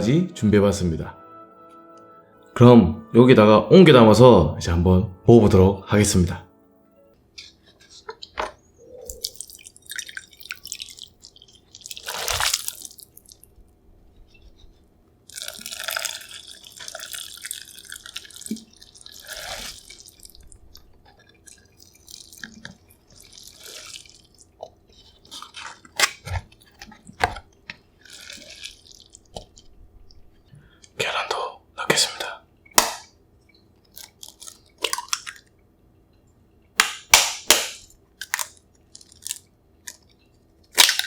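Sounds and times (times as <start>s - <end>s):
liquid pouring and splashing: 9.0s - 13.6s, 15.3s - 26.6s, 28.0s - 29.6s.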